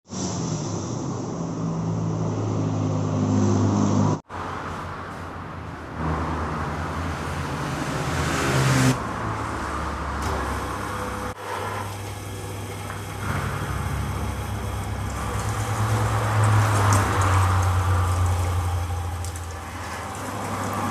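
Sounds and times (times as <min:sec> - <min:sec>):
meat grinder running: 0:10.2 - 0:20.9.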